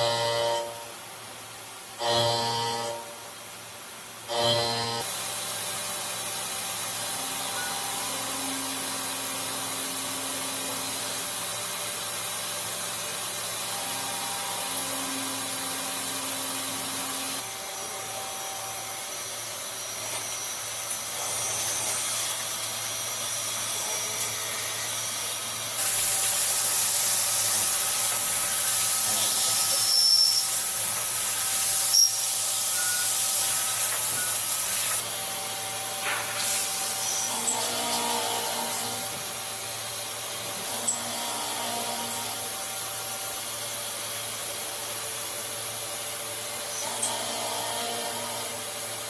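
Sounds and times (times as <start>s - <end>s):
machine tones: 0.0s - 1.0s, 2.0s - 3.3s, 4.3s - 5.1s, 31.7s - 35.0s, 35.7s - 39.2s, 46.7s - 48.6s
machine hiss: 23.2s - 35.2s, 36.0s - 38.9s.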